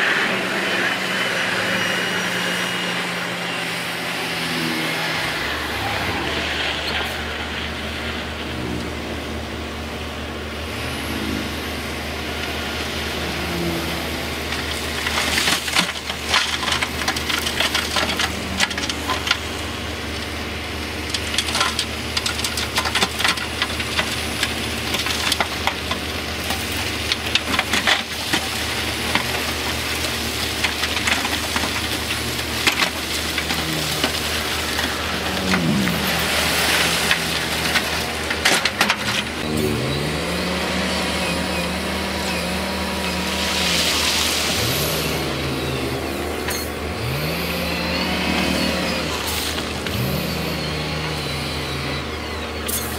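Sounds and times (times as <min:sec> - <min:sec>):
heavy diesel machine running: 0:00.0 - 0:52.9
stones clattering and cracking: 0:14.6 - 0:19.6, 0:21.2 - 0:39.4.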